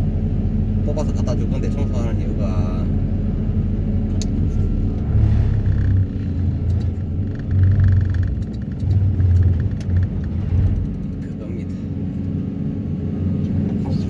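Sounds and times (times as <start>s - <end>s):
vibro hammer low hum: 2.3s - 12.3s.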